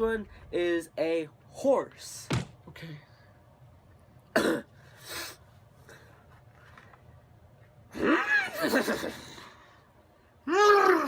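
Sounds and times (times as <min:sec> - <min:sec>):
person coughing: 0:04.3 - 0:04.7.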